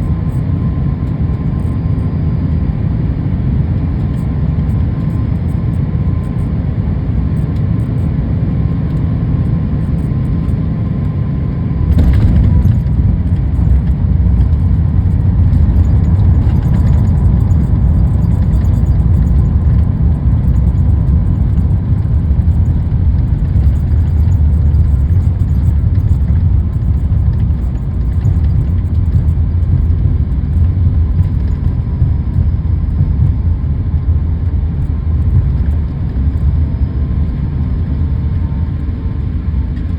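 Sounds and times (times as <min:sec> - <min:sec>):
jet cabin rumble: 0:00.0 - 0:39.9
wheels touching down thump: 0:11.9 - 0:19.0.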